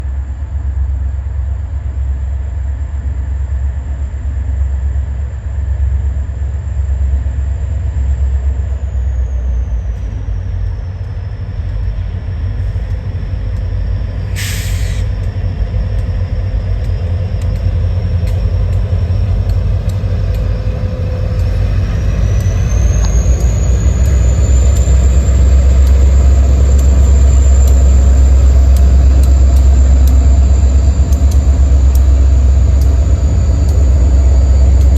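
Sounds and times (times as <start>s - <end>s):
diesel locomotive rumbling and whining: 0.0s - 34.9s
sharp hiss of air: 14.3s - 15.1s.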